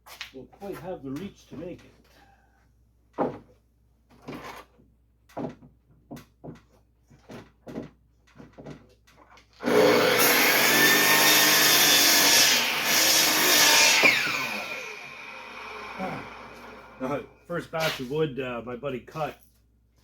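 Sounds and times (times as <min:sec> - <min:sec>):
saw blade spinning down whine: 0:09.6 - 0:17.1
electric saw cutting wood: 0:09.6 - 0:17.3.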